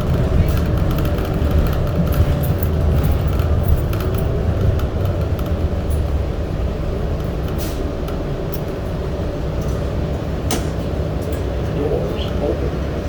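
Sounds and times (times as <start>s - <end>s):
light clicks and rattles: 0.0s - 9.0s
subway train rumbling: 0.0s - 13.0s.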